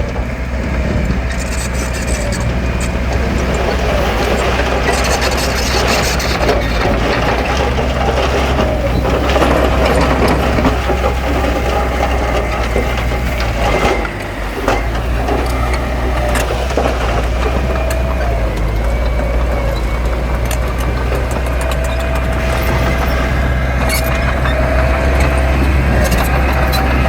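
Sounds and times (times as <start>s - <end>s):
diesel earthmoving machinery: 0.0s - 27.0s
stone and mud crunching: 0.5s - 27.0s.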